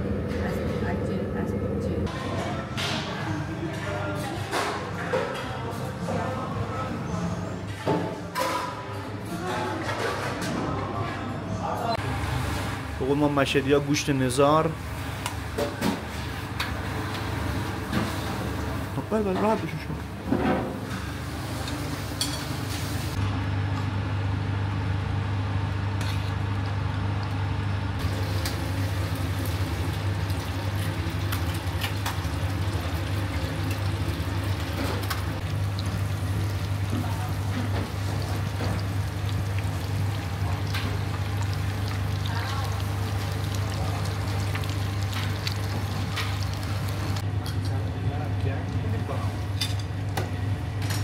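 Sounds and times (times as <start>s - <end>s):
food sizzling in oil: 28.0s - 47.2s.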